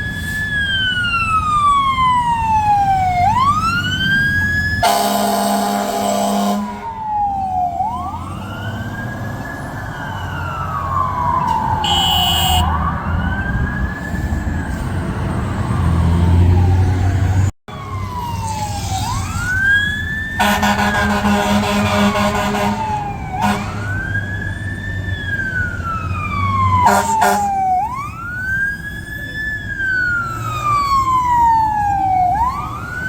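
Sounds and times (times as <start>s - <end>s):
fire truck sirens wailing: 0.0s - 33.0s
loud air horn: 4.8s - 7.0s, 11.8s - 12.7s, 20.4s - 23.9s, 26.8s - 27.5s.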